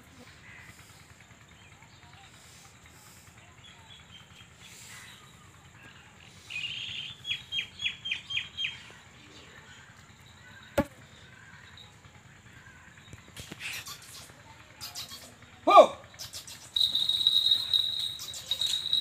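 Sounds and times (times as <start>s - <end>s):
bird chirping: 3.7s - 12.0s, 12.8s - 15.5s, 16.1s - 19.0s.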